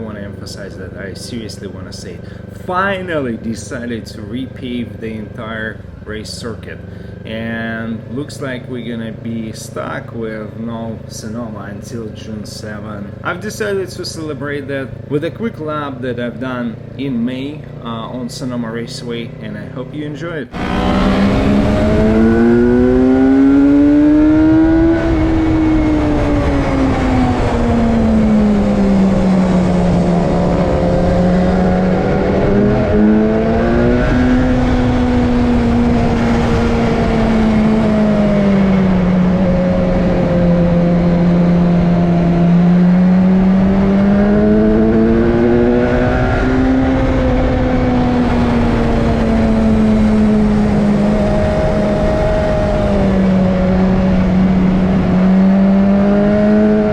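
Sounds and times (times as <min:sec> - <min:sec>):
motorcycle engine running hard: 0:00.0 - 0:56.9
wind noise: 0:20.6 - 0:56.9.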